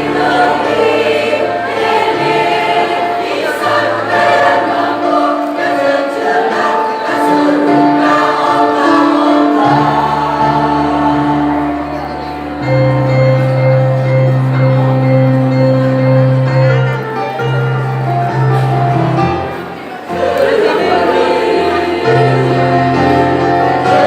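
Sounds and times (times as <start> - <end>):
choir singing: 0.0 - 13.2, 19.3 - 24.0.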